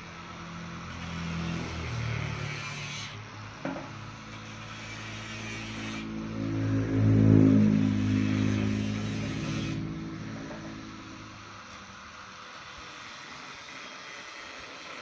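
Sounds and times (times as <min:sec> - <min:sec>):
two-stroke engine running: 0:06.0 - 0:12.6.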